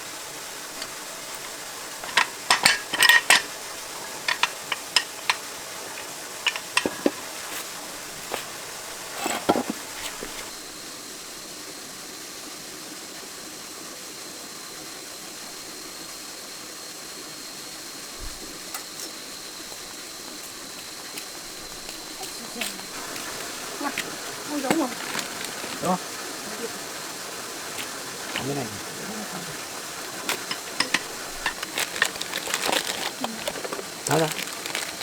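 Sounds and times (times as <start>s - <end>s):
hand tools clinking on metal parts: 0.8s - 10.5s, 21.7s - 26.0s, 30.0s - 35.0s.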